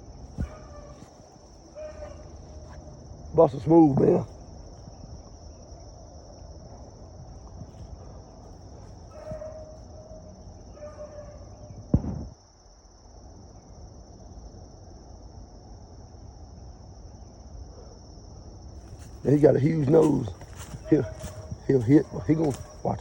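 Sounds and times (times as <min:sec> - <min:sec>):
crickets trilling: 0:00.0 - 0:23.0
dog yelping: 0:00.4 - 0:02.9, 0:09.0 - 0:11.7, 0:20.1 - 0:22.9
sharp knock: 0:11.9 - 0:12.3.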